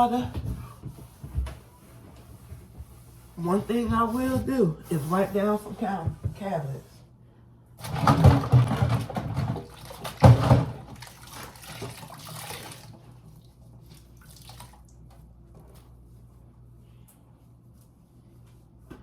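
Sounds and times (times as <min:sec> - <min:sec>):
water sloshing in a bucket: 0:07.8 - 0:15.2.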